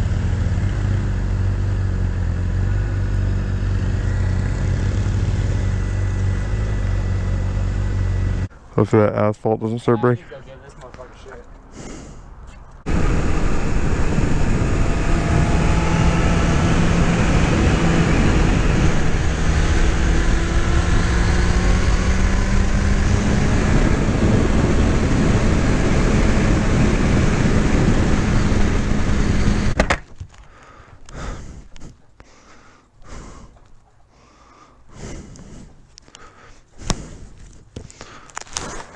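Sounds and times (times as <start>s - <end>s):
motorcycle engine: 0.0s - 8.5s, 12.8s - 29.8s
wind and road noise: 0.0s - 38.9s.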